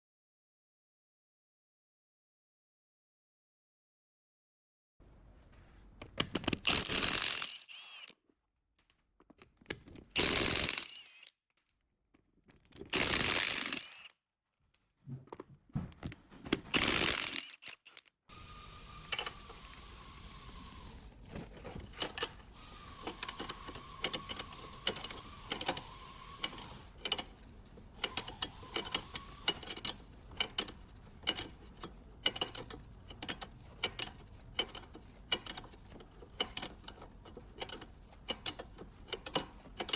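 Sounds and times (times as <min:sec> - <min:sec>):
hand ratchet clicking: 0:06.2 - 0:08.0, 0:10.2 - 0:11.2, 0:12.9 - 0:14.1, 0:16.7 - 0:39.9.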